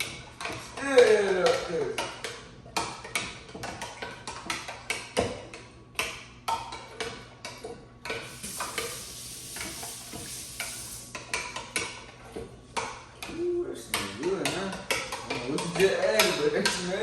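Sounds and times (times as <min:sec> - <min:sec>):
food sizzling in a hot pan: 0:08.2 - 0:11.1.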